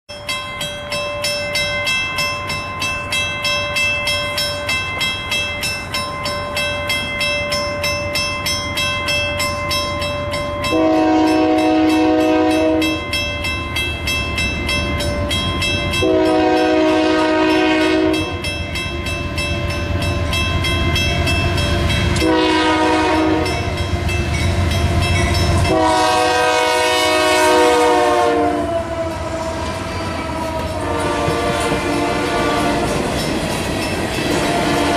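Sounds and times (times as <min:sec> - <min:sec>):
locomotive horn blasts: 0:10.7 - 0:13.1, 0:16.0 - 0:18.4, 0:22.1 - 0:23.8, 0:25.6 - 0:33.0, 0:34.3 - 0:34.9.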